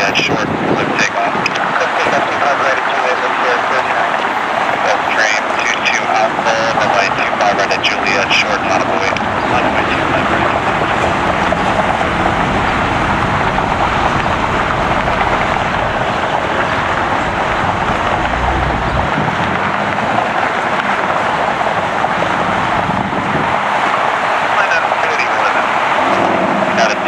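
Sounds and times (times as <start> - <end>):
jet engines roaring: 0.0 - 27.0
low rumble: 9.1 - 23.1.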